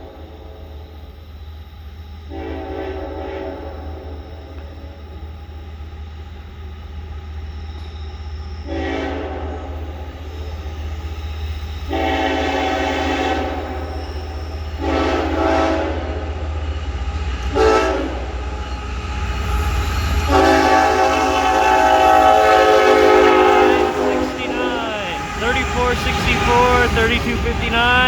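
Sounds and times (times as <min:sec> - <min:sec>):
low rumble of locomotives: 0:00.0 - 0:28.0
locomotive air horn blasts: 0:11.9 - 0:13.6, 0:14.8 - 0:16.0, 0:20.3 - 0:28.0.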